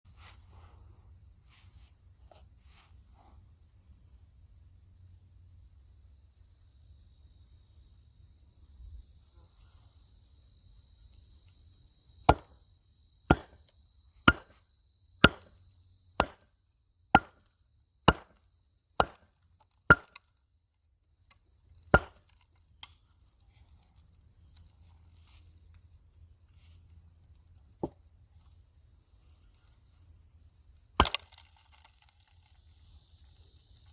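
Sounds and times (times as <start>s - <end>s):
wood cracking: 31.0s - 32.4s.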